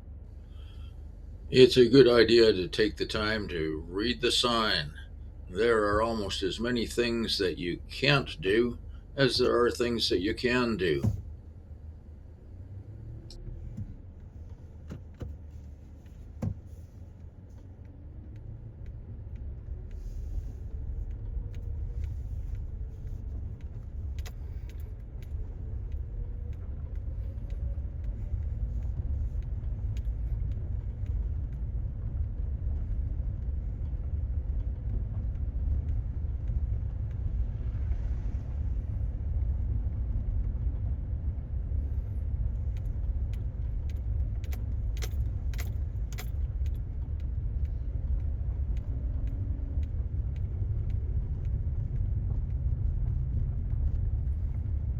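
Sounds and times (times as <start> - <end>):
car tyres and engine rumbling: 0.0 - 54.9
small clicks and rattles: 41.9 - 54.9.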